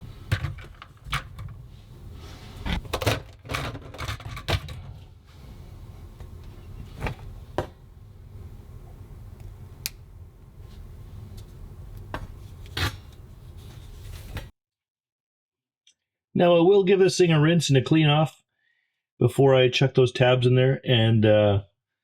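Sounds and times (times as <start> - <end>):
objects clicking and knocking: 0.2 - 1.7, 2.6 - 5.1.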